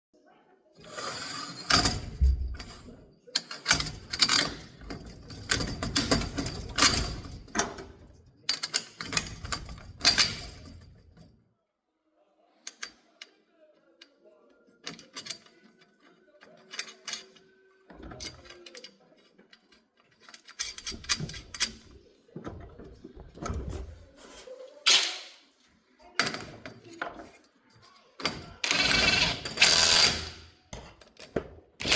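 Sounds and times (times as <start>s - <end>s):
garage door rollers rattling: 0.8s - 11.1s, 20.0s - 22.0s, 28.2s - 30.5s.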